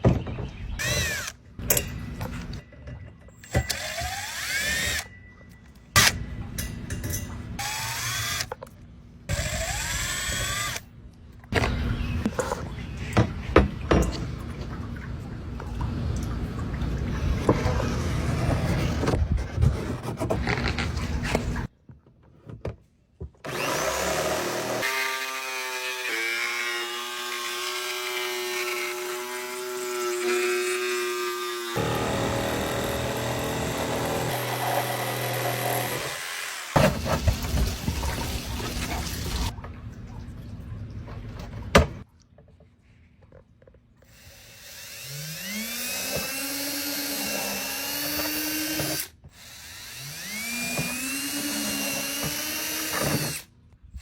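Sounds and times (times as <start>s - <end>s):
power tool cutting or scraping: 0.8s - 1.4s, 3.6s - 5.1s, 23.5s - 39.5s, 44.1s - 53.5s
motor whining steadily: 44.2s - 53.4s.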